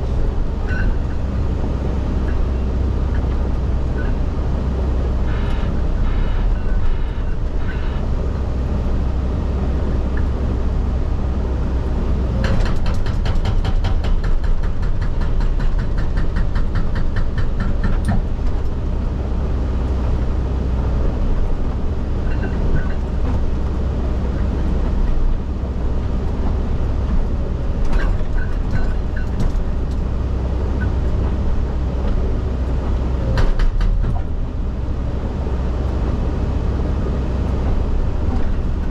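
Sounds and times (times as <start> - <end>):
excavator diesel engine running: 0.0 - 38.9
hydraulic rock breaker hammering: 12.4 - 18.2.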